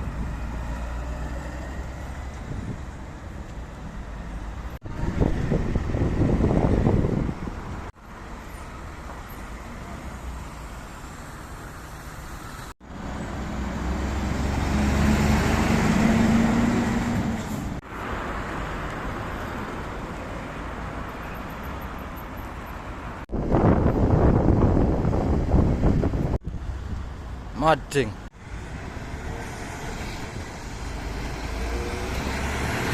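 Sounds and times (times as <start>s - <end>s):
city street traffic: 0.0s - 32.9s
motor vehicle passing close: 13.0s - 17.8s, 28.4s - 32.9s.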